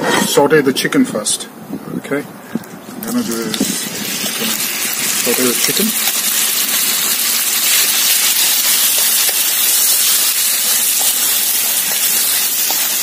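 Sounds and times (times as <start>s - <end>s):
chicken sizzling in hot oil: 3.0s - 13.0s.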